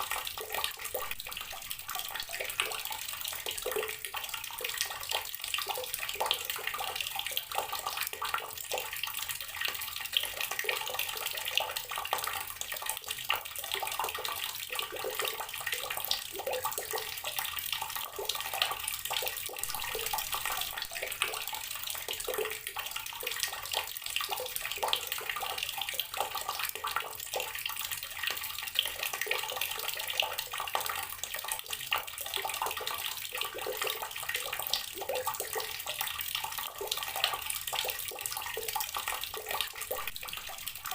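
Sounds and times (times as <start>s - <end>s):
water tap running and splashing: 0.0s - 40.9s.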